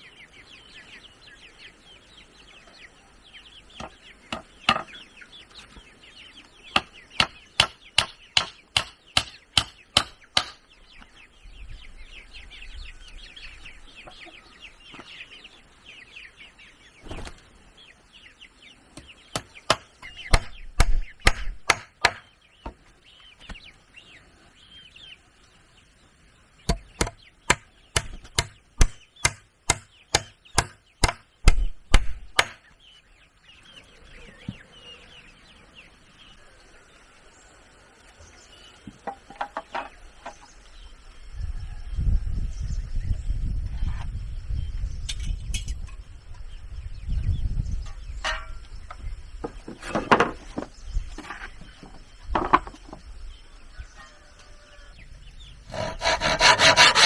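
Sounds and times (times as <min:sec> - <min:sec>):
birds chirping: 0:00.0 - 0:57.0
chickens clucking: 0:13.1 - 0:19.7
chopping blows on wood: 0:19.4 - 0:22.2, 0:26.7 - 0:32.6.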